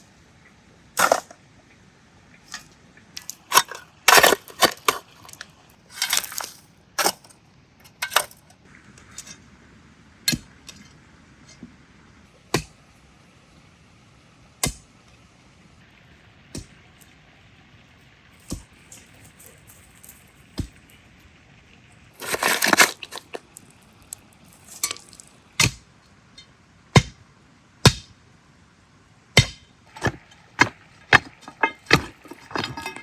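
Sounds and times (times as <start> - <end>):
scraping or rustling sound: 2.5 - 7.3, 22.1 - 25.4, 29.9 - 33.0.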